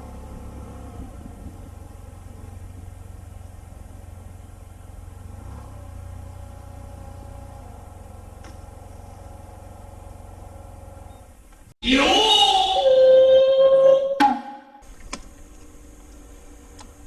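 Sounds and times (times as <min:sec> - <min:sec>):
scooter engine running: 0:00.0 - 0:11.1.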